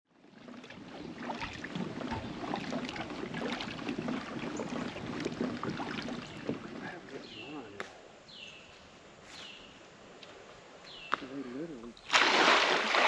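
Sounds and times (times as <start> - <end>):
water splashing around kayak: 0.1 - 7.7, 12.0 - 13.0.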